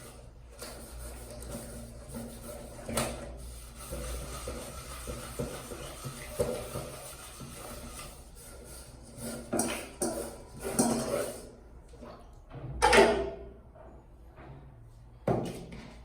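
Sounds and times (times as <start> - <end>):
scrubbing and scraping: 0.0 - 11.6
kitchenware knocking and clattering: 12.6 - 13.5.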